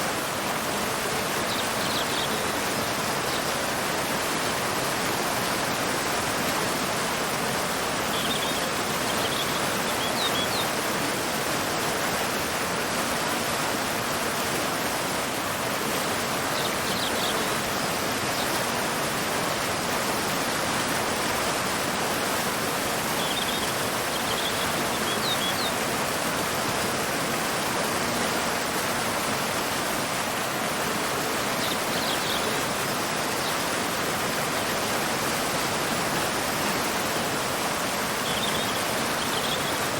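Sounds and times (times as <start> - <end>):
waterfall rushing: 0.0 - 39.9
bird chirping: 1.5 - 2.6, 8.1 - 10.7, 16.6 - 17.9, 23.2 - 25.8, 31.6 - 32.8, 38.2 - 39.8.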